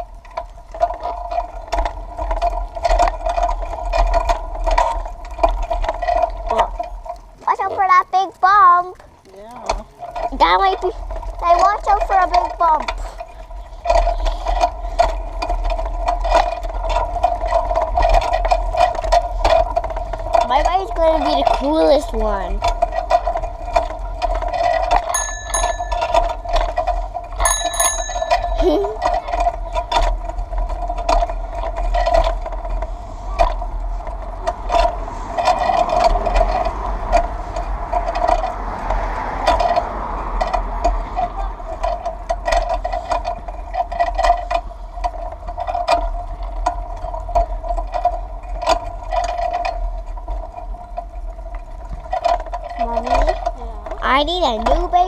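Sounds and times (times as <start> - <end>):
bike riding hum and rumble: 0.0 - 55.0
bicycle bell ringing: 24.9 - 29.9.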